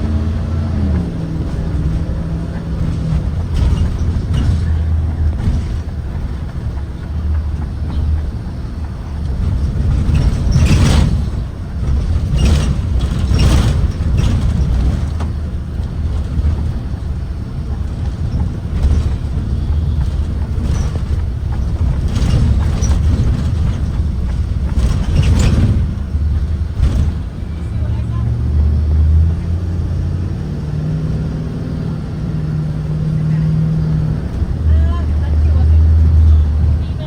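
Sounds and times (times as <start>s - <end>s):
knocks and rattles: 0.0s - 28.0s
bus engine and road rumble: 0.0s - 37.0s.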